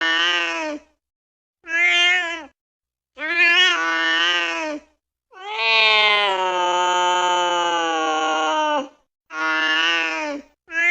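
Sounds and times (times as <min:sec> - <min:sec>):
cat meowing: 0:01.6 - 0:02.6, 0:03.2 - 0:10.9.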